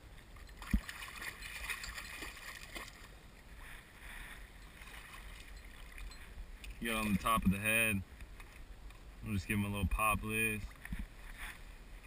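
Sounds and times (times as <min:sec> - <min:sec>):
water splashing around a kayak: 0:00.0 - 0:08.8.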